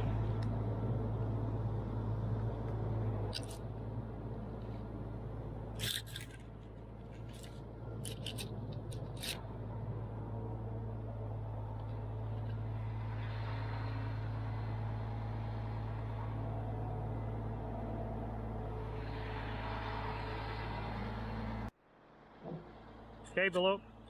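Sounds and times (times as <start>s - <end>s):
low engine hum: 0.0s - 24.0s
sharp clicks and scrapes: 3.3s - 3.7s, 5.8s - 9.5s.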